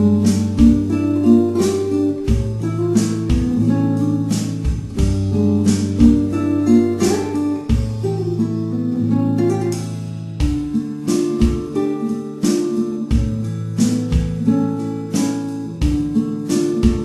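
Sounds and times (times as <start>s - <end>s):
held bass notes: 0.0s - 10.8s
strummed acoustic guitar: 0.0s - 17.0s.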